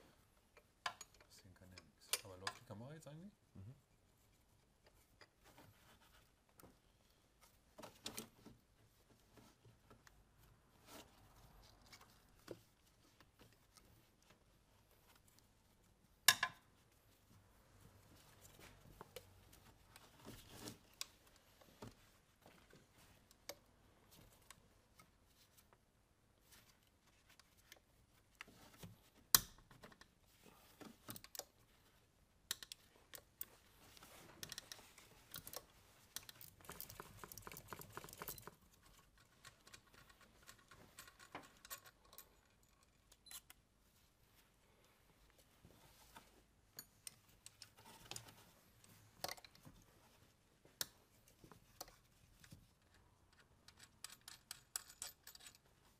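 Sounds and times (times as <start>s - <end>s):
metal parts clinking and tapping: 34.4s - 43.5s, 53.3s - 55.7s.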